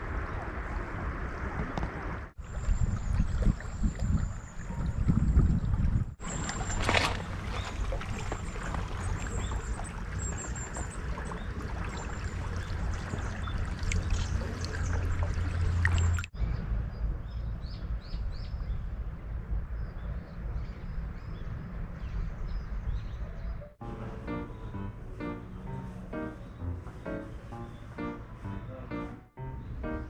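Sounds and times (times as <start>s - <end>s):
river water rushing: 6.2s - 16.3s.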